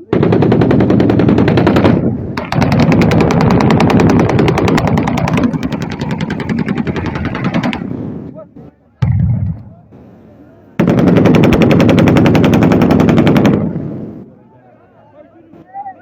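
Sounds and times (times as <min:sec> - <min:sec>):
automatic rifle fire: 0:00.1 - 0:08.0, 0:10.8 - 0:13.8.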